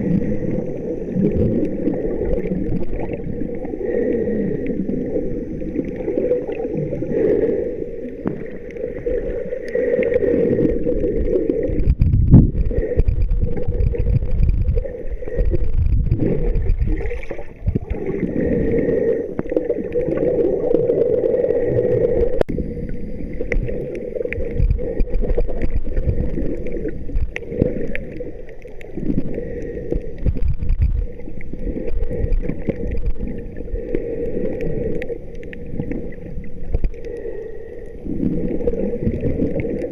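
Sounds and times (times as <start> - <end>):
water sloshing and gurgling: 0.0 - 39.9
low rumble: 10.7 - 18.8.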